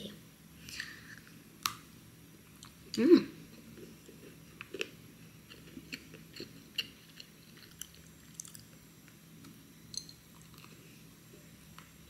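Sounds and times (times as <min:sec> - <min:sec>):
person chewing crunchy food: 0:03.6 - 0:09.2, 0:10.3 - 0:10.9.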